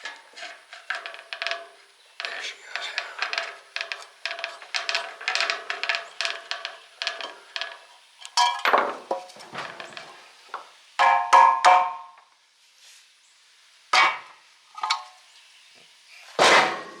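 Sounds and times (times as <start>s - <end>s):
ringing metal knocks on motor housing: 11.0s - 12.1s.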